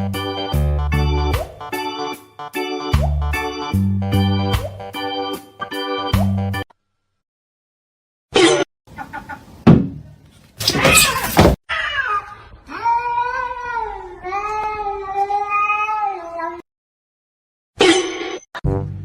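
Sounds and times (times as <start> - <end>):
cat yowling: 10.6 - 14.1.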